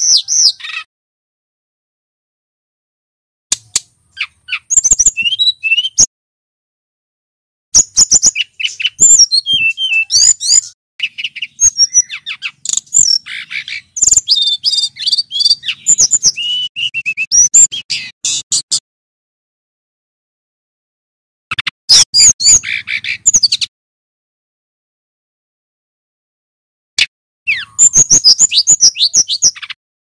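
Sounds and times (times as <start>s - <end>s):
bird singing chirps and whistles: 0.0s - 0.9s, 3.7s - 6.1s, 7.8s - 18.8s, 21.5s - 23.7s, 27.0s - 29.8s.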